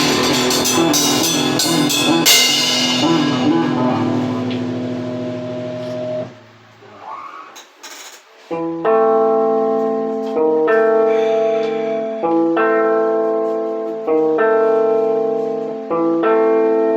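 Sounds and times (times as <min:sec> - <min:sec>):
held band chord: 0:00.0 - 0:06.7
keyboard sustained chords: 0:00.0 - 0:06.8, 0:08.6 - 0:16.9.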